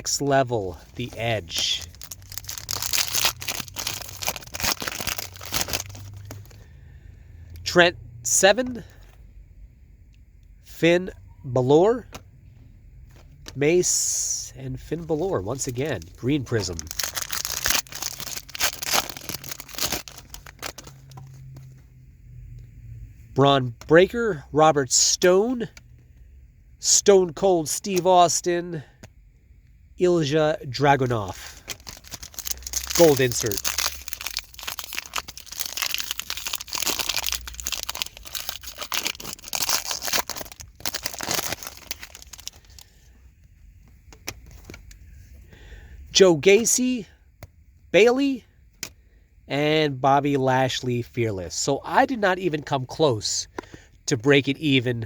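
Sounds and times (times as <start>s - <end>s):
low steady hum: 0.0s - 55.0s
foil wrapper tearing and crinkling: 1.0s - 6.6s, 15.5s - 21.2s, 31.6s - 42.8s.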